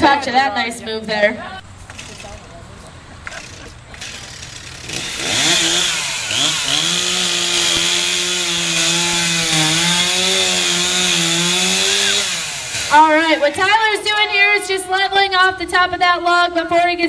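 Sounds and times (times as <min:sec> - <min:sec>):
chainsaw cutting log: 0:01.8 - 0:02.5, 0:03.3 - 0:13.9.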